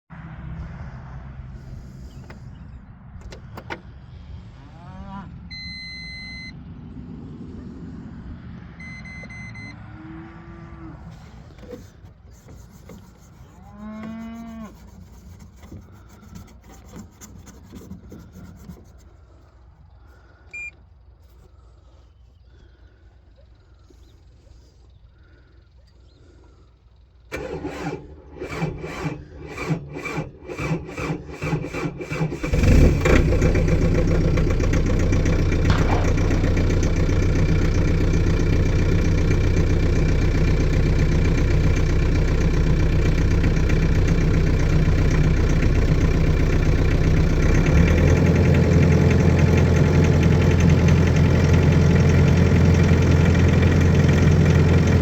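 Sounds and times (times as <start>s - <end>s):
diesel engine idling: 23.8s - 55.0s
starter motor cranking: 27.3s - 55.0s.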